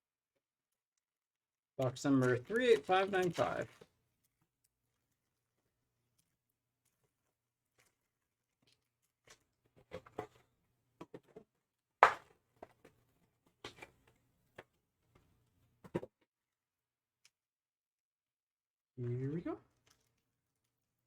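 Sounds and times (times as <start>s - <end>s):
packaging crinkling and scraping: 2.1s - 3.9s.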